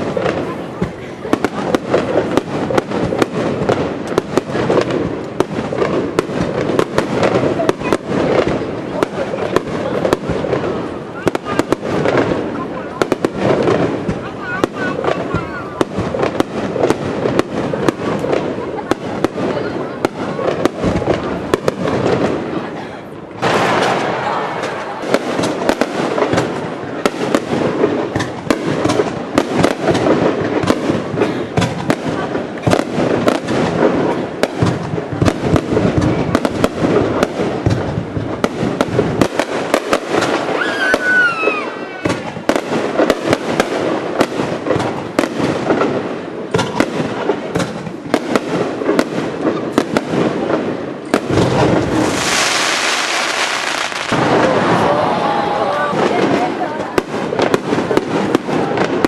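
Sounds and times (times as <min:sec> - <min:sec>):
fireworks bursting: 0:00.0 - 0:59.0
loud rushing hiss: 0:51.8 - 0:54.9.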